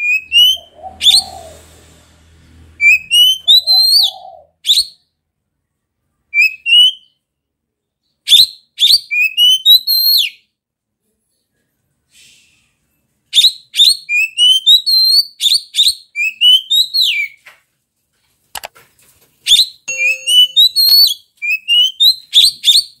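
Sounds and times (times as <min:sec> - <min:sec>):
bird singing whistled phrases: 0:02.8 - 0:05.0, 0:19.5 - 0:22.9.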